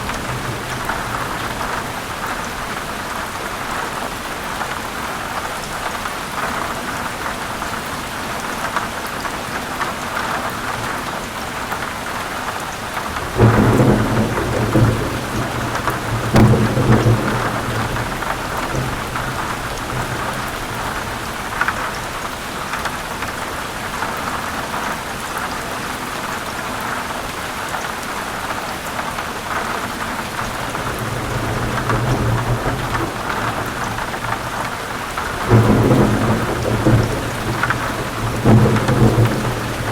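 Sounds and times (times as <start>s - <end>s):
thunder rumbling: 0.0s - 2.8s, 13.0s - 22.2s, 30.2s - 39.9s
heavy rain: 0.0s - 39.9s.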